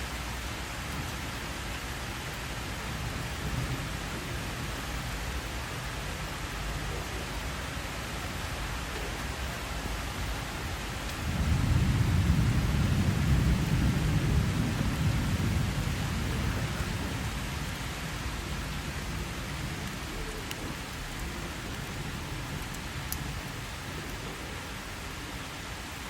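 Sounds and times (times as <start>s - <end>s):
steady rain: 0.0s - 26.0s
thunder rumbling: 11.1s - 25.4s.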